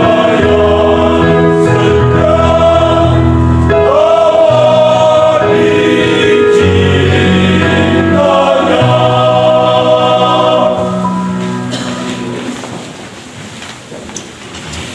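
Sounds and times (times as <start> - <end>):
vocal group singing gospel: 0.0 - 11.9.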